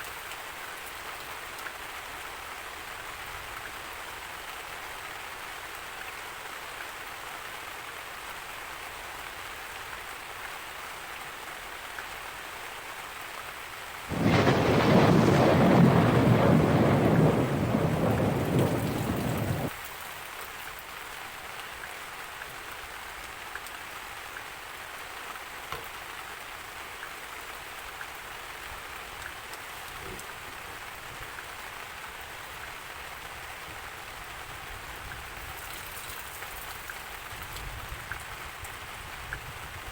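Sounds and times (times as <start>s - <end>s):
steady rain falling: 0.0s - 39.9s
thunder rumbling: 14.1s - 19.7s.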